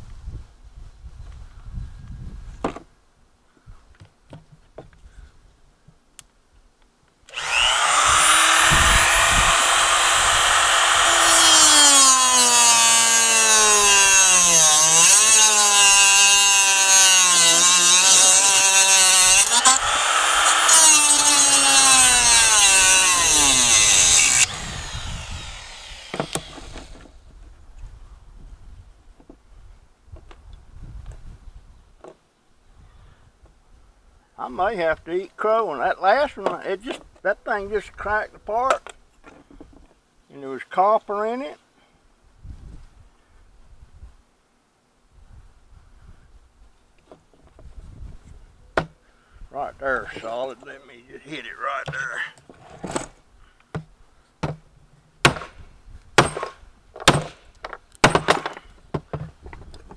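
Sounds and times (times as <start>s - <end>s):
electric power tool running: 7.3s - 27.2s.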